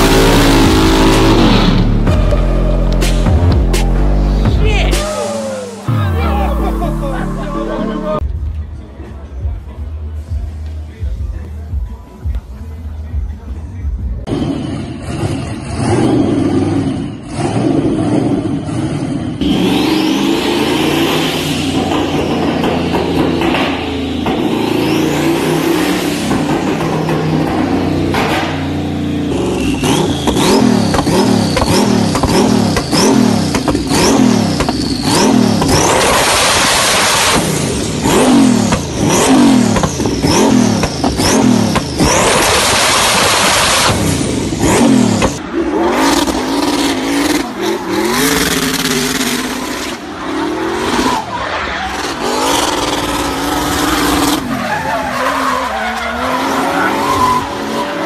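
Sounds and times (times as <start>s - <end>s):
car engine revving: 0.0s - 8.3s, 14.2s - 58.0s
drifting car engine under load: 0.0s - 8.3s, 14.2s - 58.0s
tyres squealing: 47.1s - 58.0s.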